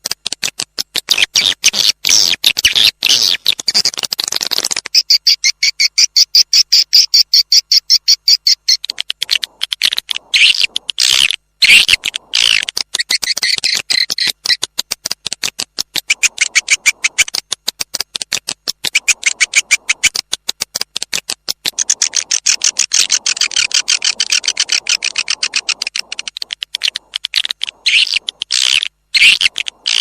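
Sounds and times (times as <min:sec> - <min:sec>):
swiftlets twittering: 0:08.1 - 0:14.6, 0:16.0 - 0:18.0, 0:18.7 - 0:20.3, 0:21.4 - 0:30.0.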